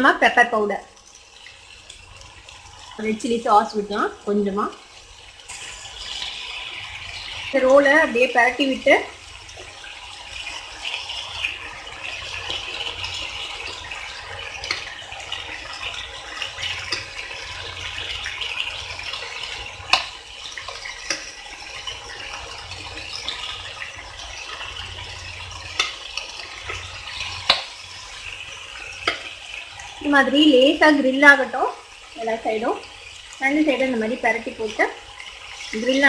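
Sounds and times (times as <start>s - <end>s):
food sizzling in a pan: 0.0s - 36.0s
spatula and tongs knocking pan: 25.7s - 26.0s, 27.4s - 27.7s, 29.0s - 29.4s.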